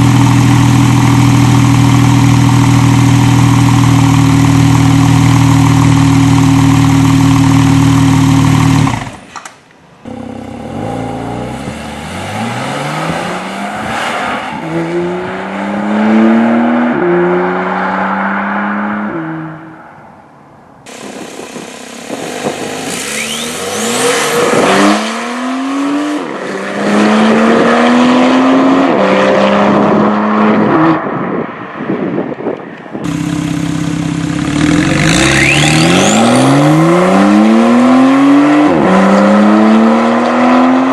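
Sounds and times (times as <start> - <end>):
car exhaust accelerating hard: 0.0 - 9.2, 20.9 - 25.9, 33.0 - 40.9.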